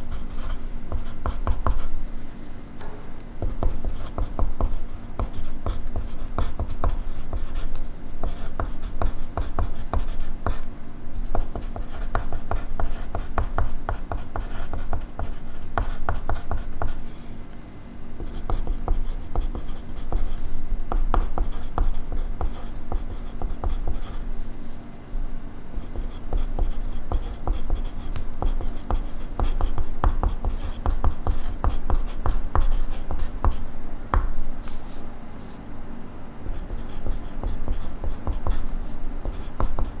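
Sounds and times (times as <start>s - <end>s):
faint steady hum: 0.0s - 40.0s
pencil writing on paper: 0.1s - 2.0s, 3.4s - 17.1s, 18.2s - 24.4s, 25.8s - 35.0s, 36.4s - 40.0s.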